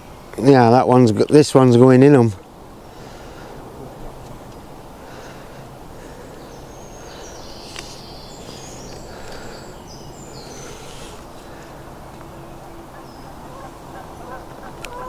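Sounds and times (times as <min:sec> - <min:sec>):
outdoor background rumble: 0:00.0 - 0:15.0.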